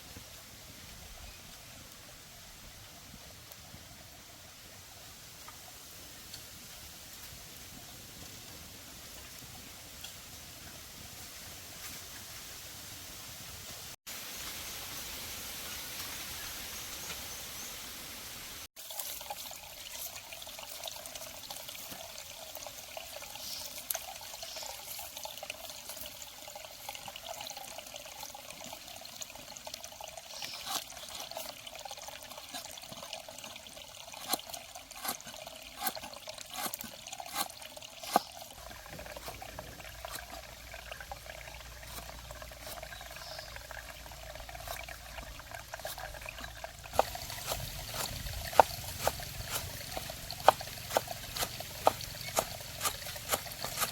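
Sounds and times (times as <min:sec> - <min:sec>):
water trickling and pouring: 0:18.7 - 0:53.9.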